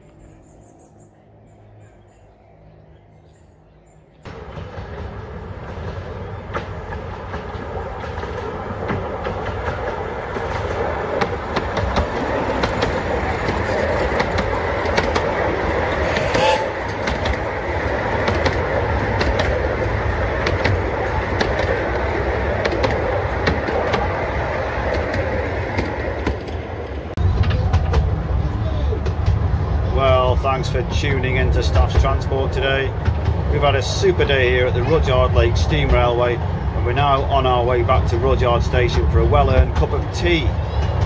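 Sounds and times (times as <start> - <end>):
wheels clicking over rail joints: 4.3 - 29.6
miniature train rumble: 4.3 - 41.0.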